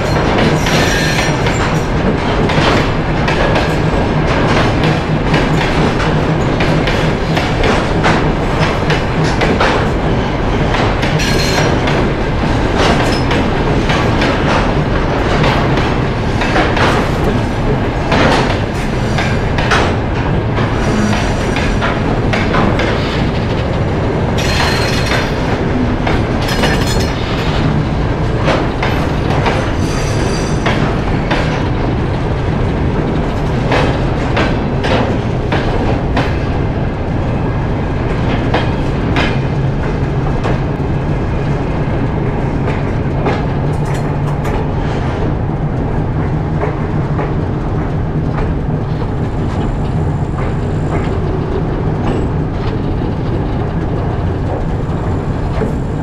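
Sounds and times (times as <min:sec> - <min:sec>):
low train rumble: 0:00.0 - 0:56.0
train wheels clattering: 0:00.0 - 0:56.0
wagons knocking and clanking: 0:00.1 - 0:31.6.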